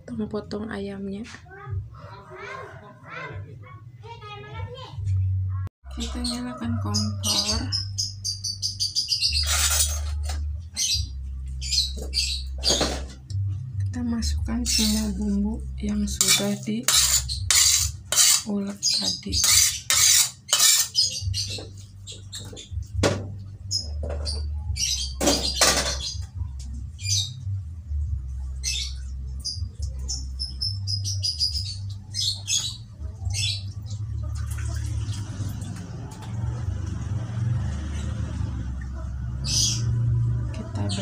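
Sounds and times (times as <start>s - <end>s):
small birds chirping: 5.9s - 35.4s.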